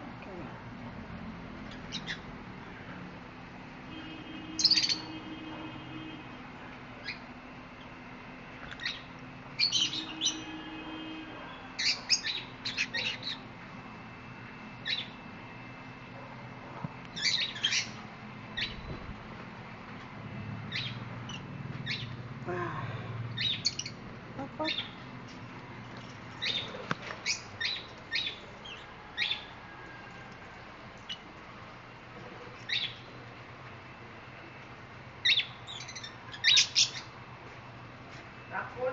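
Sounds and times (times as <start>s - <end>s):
pet birds chirping: 1.6s - 2.4s, 4.4s - 5.4s, 7.0s - 8.0s, 8.6s - 10.6s, 11.5s - 13.5s, 14.7s - 15.2s, 17.1s - 19.0s, 20.6s - 22.3s, 23.3s - 25.5s, 26.3s - 29.6s, 31.0s - 31.3s, 32.5s - 33.2s, 35.2s - 37.2s.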